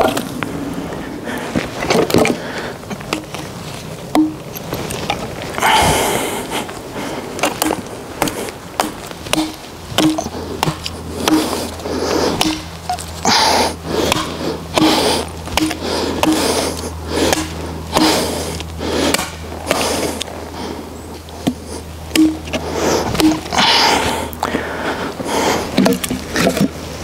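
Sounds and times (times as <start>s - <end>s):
wooden branches knocking and cracking: 1.8s - 5.8s, 7.4s - 13.4s, 14.0s - 20.4s, 21.2s - 24.6s.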